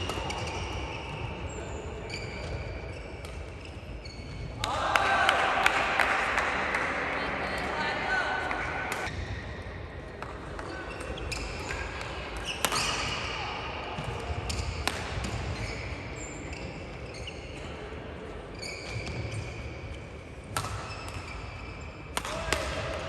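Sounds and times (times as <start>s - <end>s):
shoes squeaking on court: 0.1s - 4.6s, 10.6s - 13.1s, 14.3s - 17.7s, 18.5s - 19.9s
rackets striking shuttlecock: 10.2s - 13.2s, 14.0s - 15.6s, 20.5s - 21.4s, 22.1s - 23.0s.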